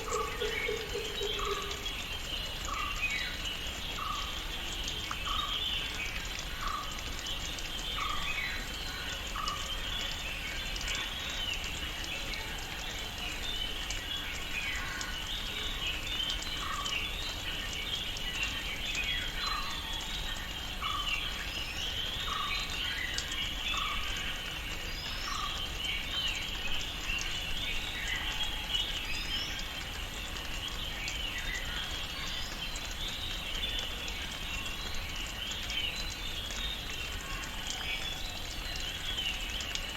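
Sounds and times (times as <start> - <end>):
bird and insect chirping: 0.0 - 4.3.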